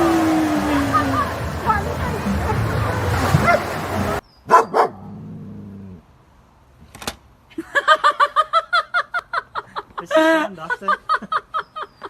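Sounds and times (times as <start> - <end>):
dog barking rapidly: 3.3 - 3.8, 4.5 - 5.0.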